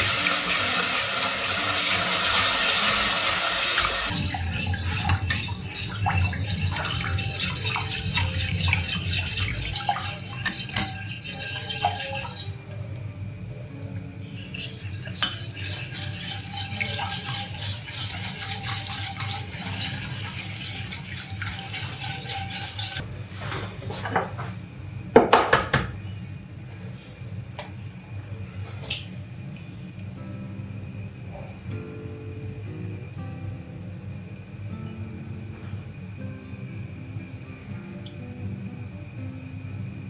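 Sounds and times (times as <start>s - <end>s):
steady low hum: 3.8s - 23.9s
metal cutlery clinking on dishes: 4.1s - 12.7s, 14.4s - 23.0s.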